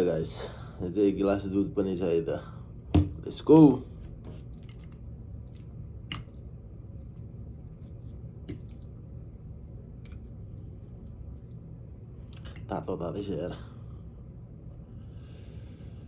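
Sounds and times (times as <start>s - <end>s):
low steady hum: 0.0s - 16.0s
wet squishes of noodles: 4.1s - 16.0s.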